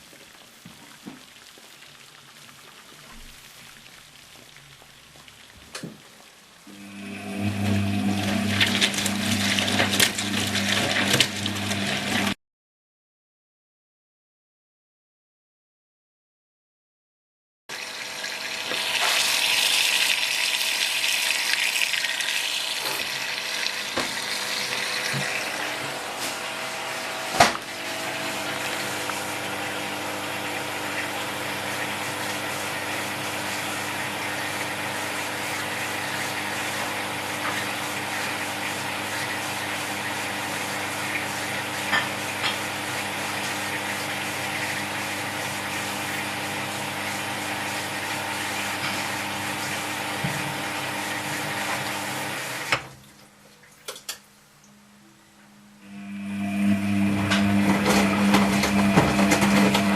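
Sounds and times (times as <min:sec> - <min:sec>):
water flowing into washing machine: 0:06.6 - 0:12.4, 0:17.7 - 0:54.3, 0:55.8 - 0:59.9.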